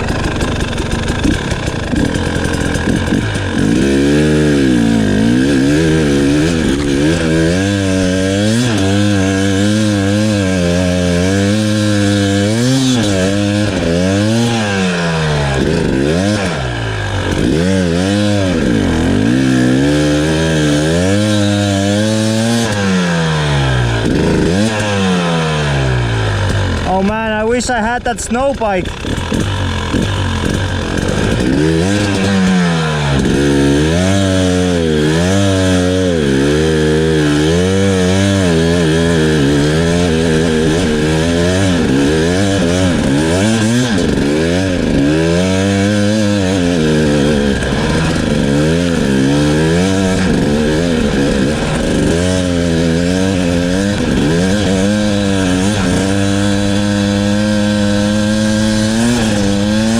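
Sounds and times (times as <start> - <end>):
two-stroke dirt bike revving: 0.0 - 59.9.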